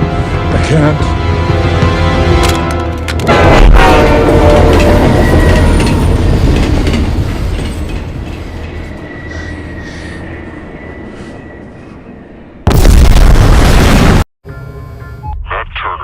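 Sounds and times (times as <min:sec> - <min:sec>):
explosion blast: 0:12.6 - 0:14.2.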